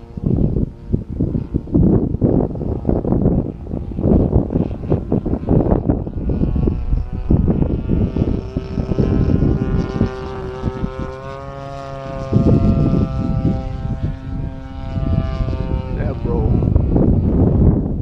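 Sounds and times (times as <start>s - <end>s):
model plane engine in flight: 0.0s - 18.0s
wind buffeting microphone: 0.0s - 18.0s.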